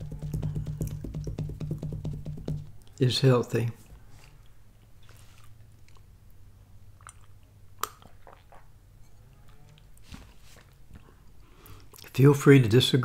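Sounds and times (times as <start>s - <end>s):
chewing crunchy snacks: 4.2s - 8.7s.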